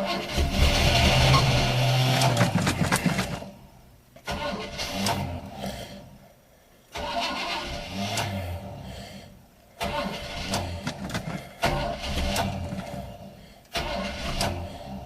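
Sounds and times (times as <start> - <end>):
car engine cranking and firing: 0.0 - 5.6, 6.9 - 9.0, 9.7 - 15.0.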